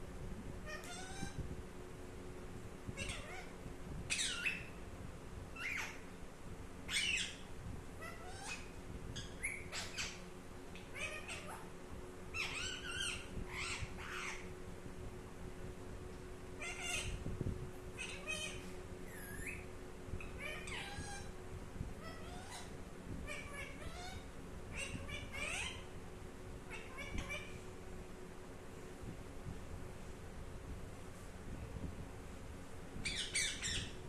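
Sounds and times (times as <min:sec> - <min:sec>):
parrot whistling and calling: 0:06.9 - 0:07.4, 0:12.4 - 0:14.4, 0:33.0 - 0:34.0.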